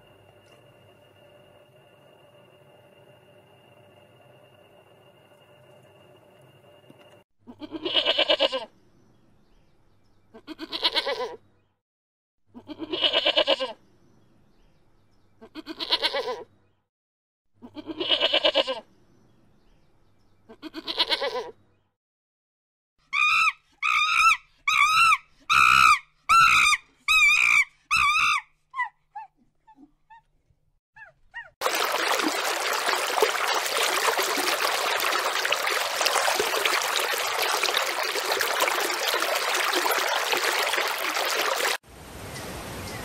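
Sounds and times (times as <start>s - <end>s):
animal bleating: 7.5s - 8.7s, 10.3s - 11.4s, 12.6s - 13.8s, 15.4s - 16.5s, 17.6s - 18.8s, 20.5s - 21.6s.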